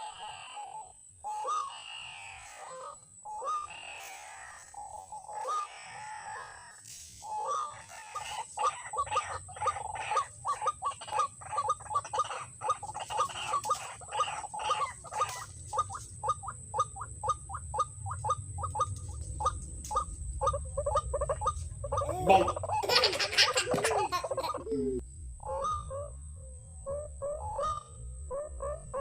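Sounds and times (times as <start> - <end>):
waterhen calling harsh notes: 7.2 - 24.8.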